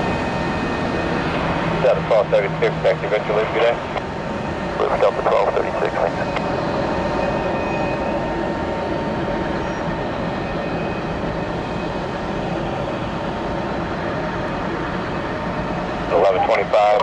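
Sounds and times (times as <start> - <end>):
faint whining tones: 0.0 - 17.0
jet engine noise: 0.0 - 17.0.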